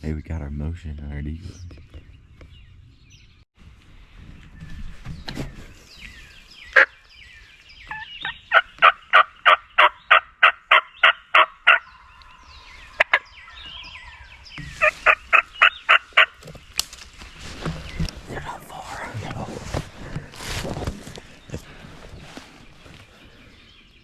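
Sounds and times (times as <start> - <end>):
faint songbird chirps: 4.2 - 19.4, 21.0 - 24.0
turkey yelping: 7.9 - 11.9, 14.8 - 16.4.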